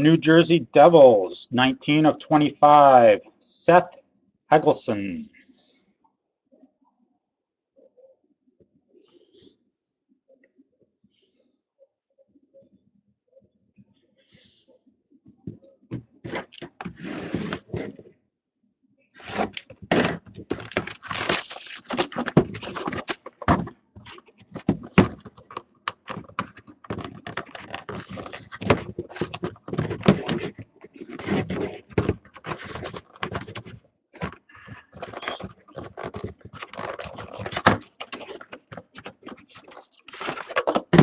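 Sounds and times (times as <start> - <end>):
cards and packaging rustling: 19.2 - 41.0.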